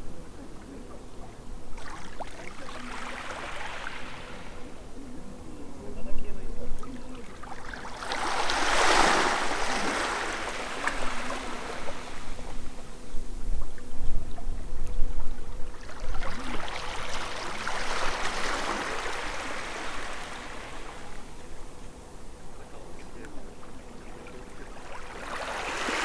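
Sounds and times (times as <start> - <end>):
water sloshing against quay: 6.8 - 26.0.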